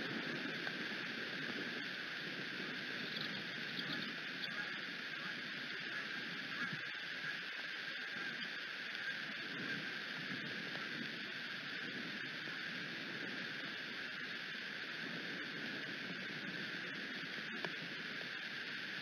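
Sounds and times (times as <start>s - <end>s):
patter of raindrops: 0.0s - 19.0s
rain hiss: 0.0s - 19.0s.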